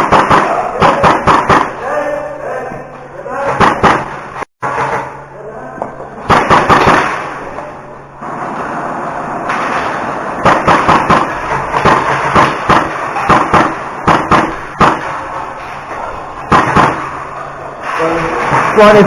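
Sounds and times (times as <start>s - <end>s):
airsoft gunshots: 0.0s - 2.0s, 3.5s - 4.8s, 6.2s - 7.8s, 9.5s - 15.8s, 16.4s - 19.0s
pellets striking: 0.0s - 2.2s, 3.4s - 5.3s, 6.2s - 7.9s, 9.5s - 19.0s.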